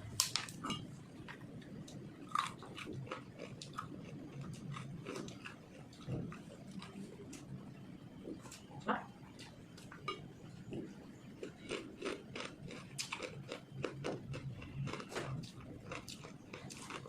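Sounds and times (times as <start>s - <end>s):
low steady hum: 0.0s - 17.0s
crunchy chewing: 1.8s - 7.5s, 9.4s - 17.0s.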